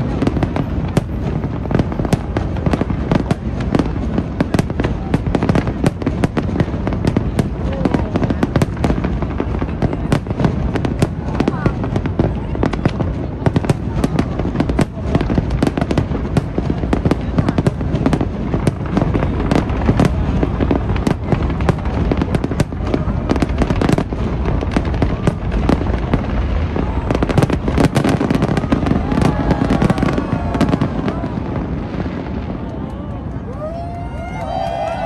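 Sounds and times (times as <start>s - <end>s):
fireworks bangs and crackles: 0.0s - 35.0s
people's voices: 0.0s - 35.0s.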